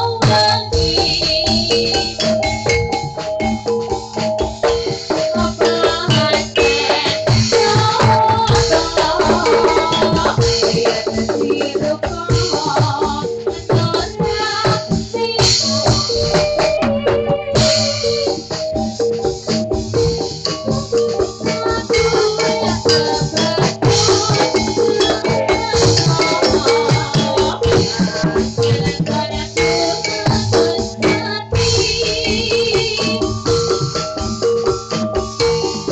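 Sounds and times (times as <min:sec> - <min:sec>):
repeating metallophone notes: 0:00.0 - 0:35.9
high cymbal shimmer: 0:15.6 - 0:19.7
kendang drum strokes: 0:15.9 - 0:18.2.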